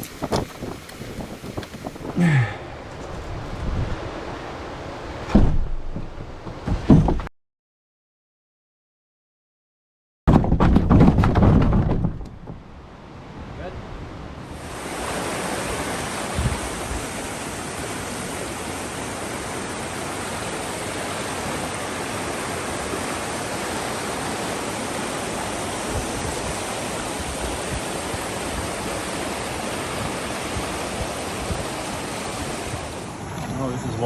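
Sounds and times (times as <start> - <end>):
low thump: 5.3 - 7.3
whitewater rushing over rapids: 14.5 - 34.0.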